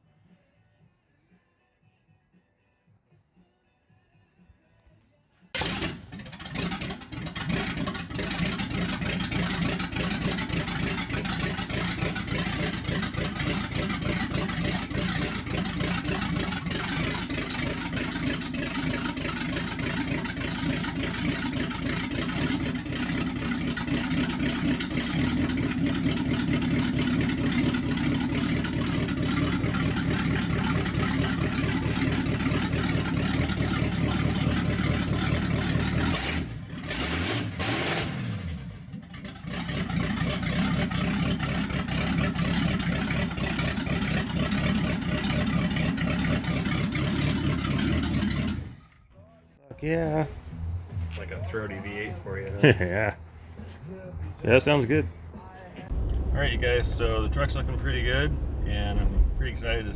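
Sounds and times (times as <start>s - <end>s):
throaty car engine running: 5.6s - 49.2s, 50.0s - 59.9s.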